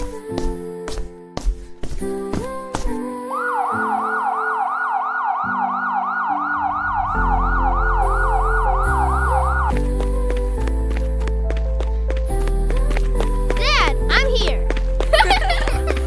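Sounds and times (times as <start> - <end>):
background music: 0.0 - 16.0
siren sweeping up: 3.4 - 9.8
low bass line: 6.6 - 11.1.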